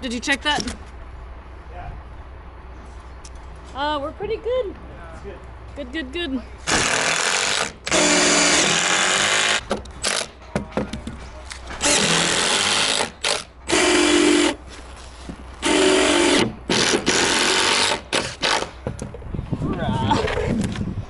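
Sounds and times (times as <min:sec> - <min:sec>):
power drill running: 0:06.7 - 0:10.2, 0:11.8 - 0:14.6, 0:15.6 - 0:18.7.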